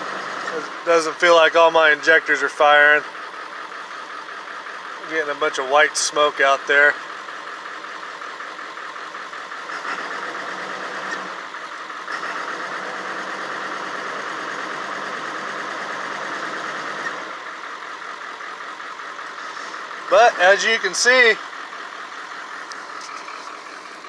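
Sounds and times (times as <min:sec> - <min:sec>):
diesel engine rough idle: 0:00.0 - 0:24.0.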